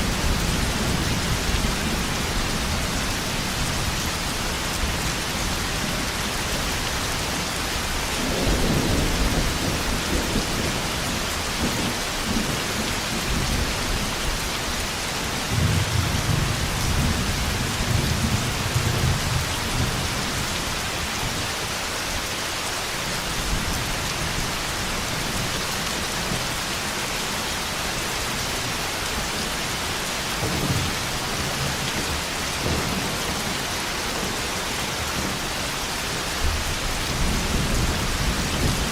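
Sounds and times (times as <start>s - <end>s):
heavy rain: 0.0s - 38.9s
thunder rumbling: 36.4s - 38.9s.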